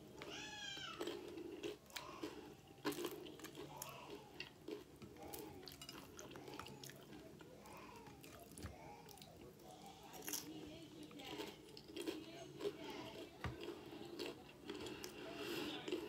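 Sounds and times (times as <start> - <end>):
rhythmic chewing: 0.0 - 16.0
tortilla chips crunching: 0.2 - 7.5, 11.2 - 16.0.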